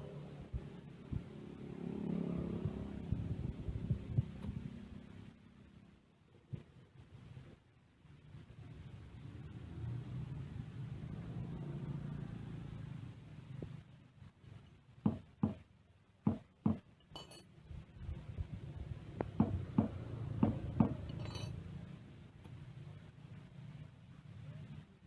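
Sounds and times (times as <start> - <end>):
metal tools clinking: 17.0 - 17.5, 21.0 - 21.6.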